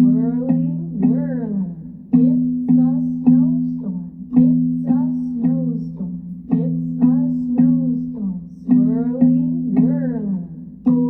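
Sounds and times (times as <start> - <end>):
plucked string instrument music: 0.0 - 11.0.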